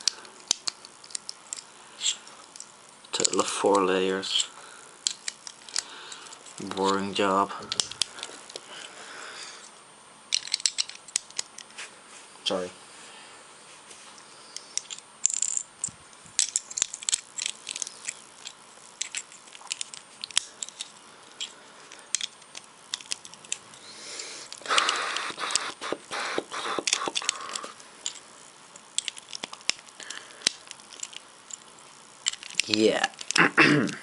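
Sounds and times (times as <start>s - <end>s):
loose plastic pieces rattling: 0.0s - 1.7s, 4.3s - 8.9s, 10.3s - 11.7s, 14.7s - 23.8s, 26.8s - 33.4s
plastic pieces clicking together: 0.0s - 1.7s, 4.3s - 8.9s, 10.3s - 11.7s, 14.6s - 23.8s, 24.4s - 25.8s, 26.6s - 34.0s.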